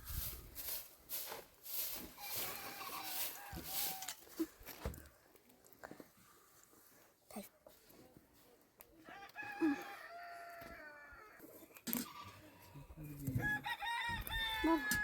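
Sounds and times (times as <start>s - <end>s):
rooster crowing: 2.2s - 4.2s, 9.1s - 11.4s, 13.4s - 15.0s.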